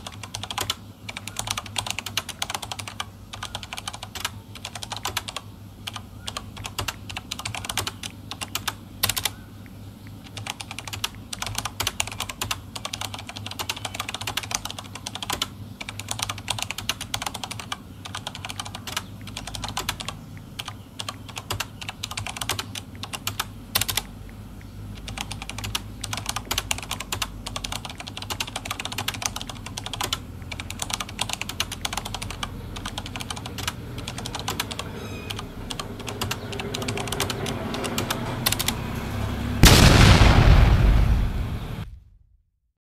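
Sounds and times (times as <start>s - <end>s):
typing on phone keyboard: 0.0s - 38.9s
low hum: 33.9s - 42.2s.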